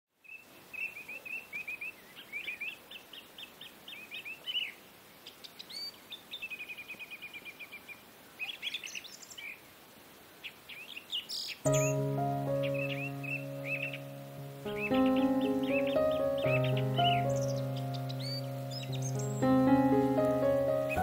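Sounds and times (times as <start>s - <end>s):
small birds chirping: 0.2s - 21.0s
bird trill: 11.4s - 21.0s.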